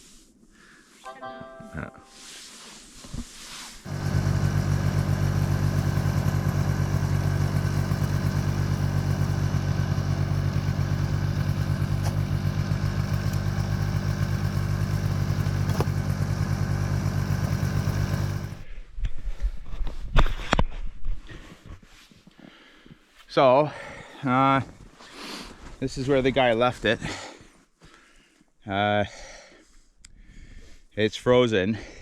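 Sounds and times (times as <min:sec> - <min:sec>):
snowmobile engine running: 0:03.9 - 0:18.6.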